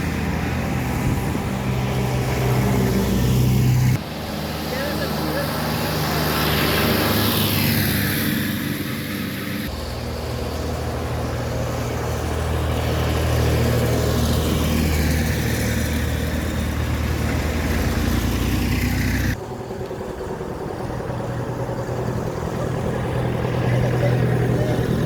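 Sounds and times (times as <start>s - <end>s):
vehicle engines droning: 0.0s - 25.0s.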